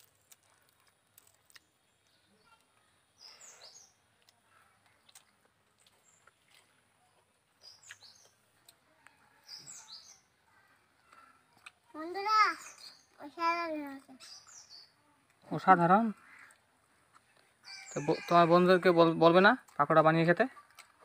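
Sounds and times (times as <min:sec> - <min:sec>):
faint bird chirps: 0:01.6 - 0:15.2.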